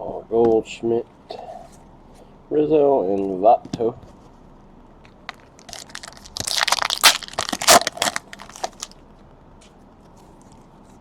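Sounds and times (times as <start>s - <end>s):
foil wrapper crinkling and tearing: 5.3s - 9.0s.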